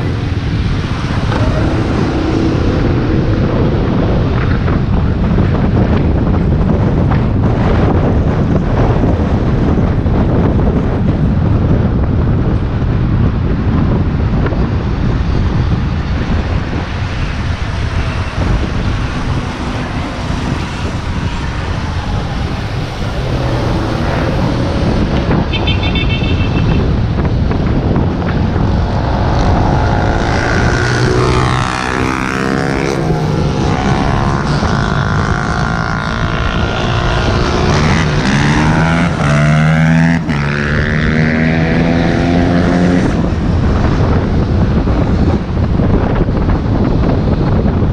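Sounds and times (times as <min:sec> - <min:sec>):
traffic noise: 0:00.0 - 0:47.9
wind on microphone: 0:00.0 - 0:47.9
passing vehicle motor whines: 0:17.1 - 0:25.5.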